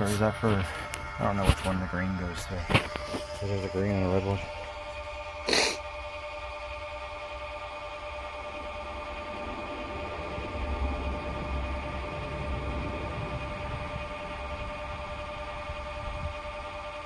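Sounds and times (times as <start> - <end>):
air pump electric hum: 0.0 - 17.0
low rumble: 8.4 - 16.4.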